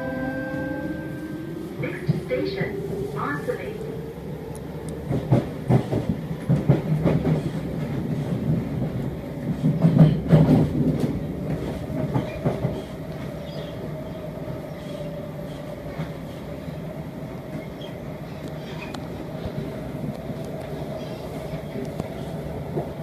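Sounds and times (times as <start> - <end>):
train wheels clattering over track: 5.0 - 13.7.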